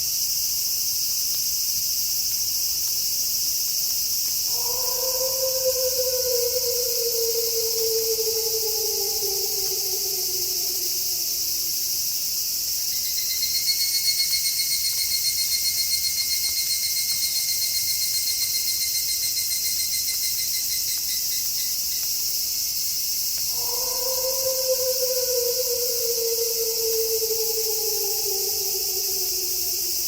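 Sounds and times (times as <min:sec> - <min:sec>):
night insect chorus: 0:00.0 - 0:30.0
cricket pulsing trill: 0:03.8 - 0:30.0
wolf howling: 0:04.5 - 0:12.1, 0:23.5 - 0:30.0.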